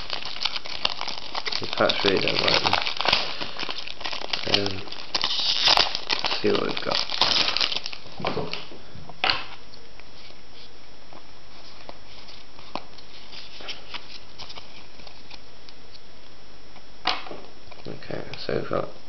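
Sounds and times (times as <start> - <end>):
cards rustling: 0.0 - 8.7, 11.5 - 15.4
steady hiss: 0.0 - 19.0.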